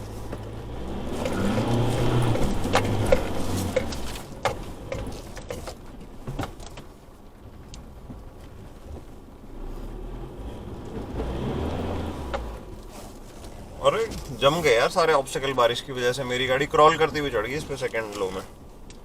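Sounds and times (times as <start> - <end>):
diesel engine rumbling: 0.0 - 19.0
sharp knocks and clicks: 0.3 - 7.0.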